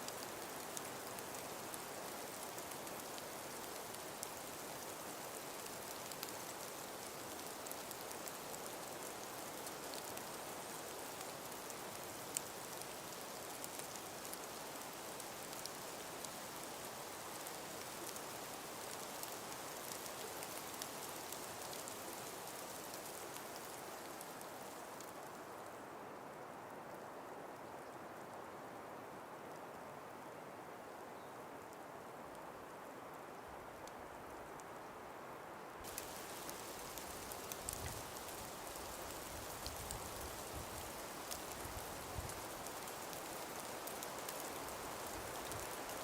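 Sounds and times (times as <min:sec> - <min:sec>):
breeze hissing through forest: 0:00.0 - 0:46.0
light ticks: 0:00.1 - 0:25.4, 0:35.9 - 0:46.0.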